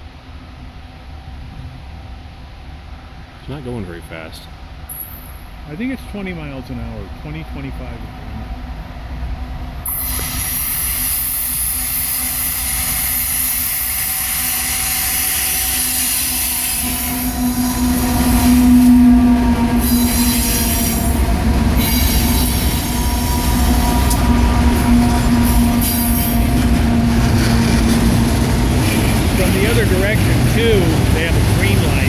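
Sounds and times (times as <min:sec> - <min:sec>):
freight train wheels rumbling: 0:00.0 - 0:32.0
high-pitched wheel squeal: 0:09.9 - 0:28.0
steady droning tone: 0:16.6 - 0:27.1.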